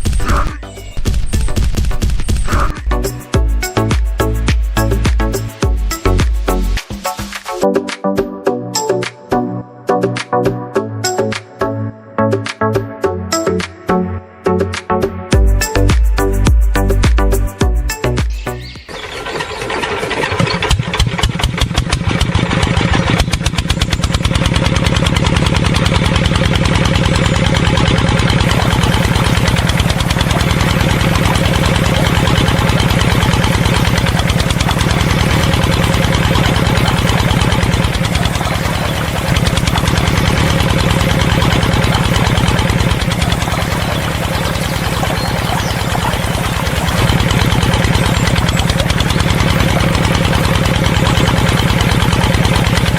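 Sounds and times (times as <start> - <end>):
small engine running: 18.9 - 52.9.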